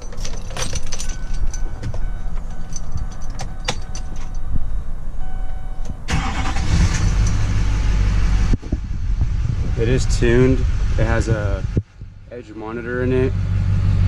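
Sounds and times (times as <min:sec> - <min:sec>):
diesel engine starting and running: 0:00.0 - 0:14.0
electronic dash tones: 0:01.0 - 0:06.6
ignition clicks: 0:05.2 - 0:07.5.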